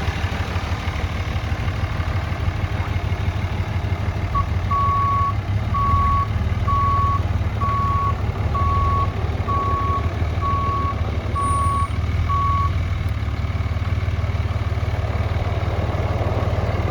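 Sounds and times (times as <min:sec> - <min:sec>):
truck engine running: 0:00.0 - 0:16.9
backup alarm beeping: 0:04.4 - 0:12.8.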